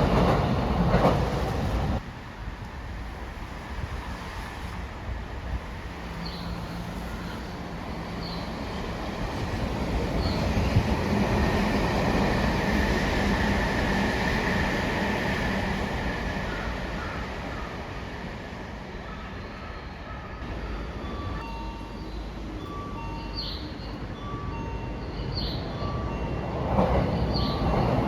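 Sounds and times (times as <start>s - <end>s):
electric train rumble: 0.0s - 28.0s.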